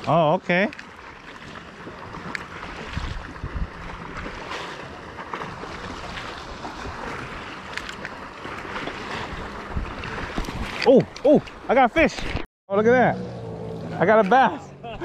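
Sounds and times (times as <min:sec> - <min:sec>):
wind blowing over microphone: 0:02.8 - 0:04.4, 0:09.2 - 0:10.8.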